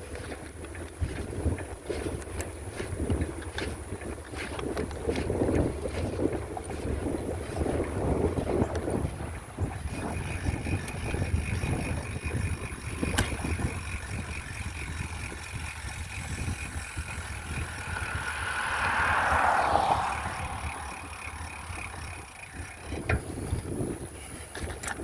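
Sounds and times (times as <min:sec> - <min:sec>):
wind rumbling on microphone: 0:00.0 - 0:25.0
vehicle passing: 0:03.6 - 0:23.5.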